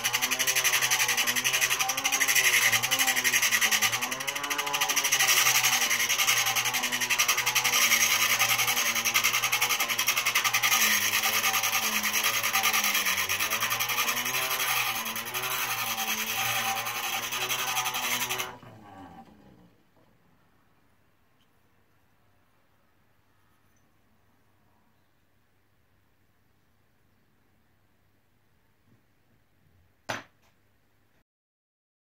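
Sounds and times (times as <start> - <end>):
hand-crank grinder gears whirring: 0.0 - 19.8.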